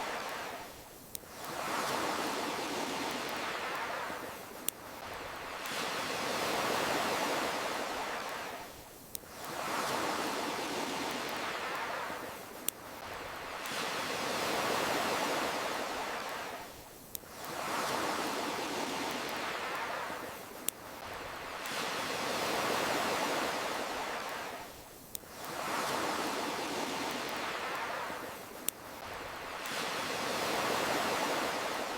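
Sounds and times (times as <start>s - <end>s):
campfire crackle: 0.0s - 31.9s
ocean waves washing: 0.0s - 31.9s
campfire crackling pops: 0.1s - 6.0s.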